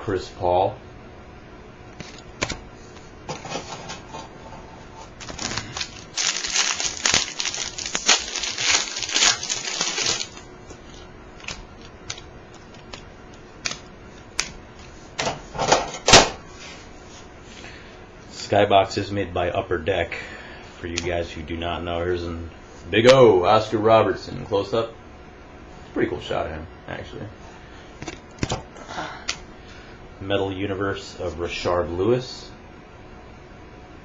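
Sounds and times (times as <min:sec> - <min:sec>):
foil wrapper crinkling: 0:05.2 - 0:13.0
cards clicking together: 0:11.4 - 0:14.6.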